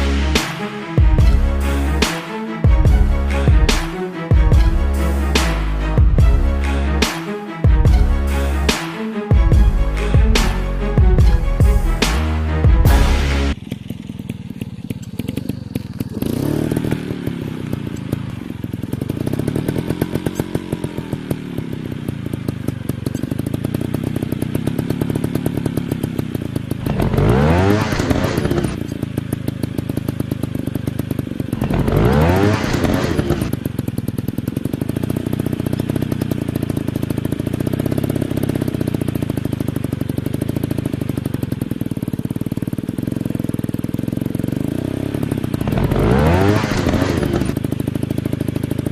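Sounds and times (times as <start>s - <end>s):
dirt bike engines revving: 9.5s - 22.5s, 26.8s - 29.3s, 31.5s - 33.6s, 44.6s - 48.9s.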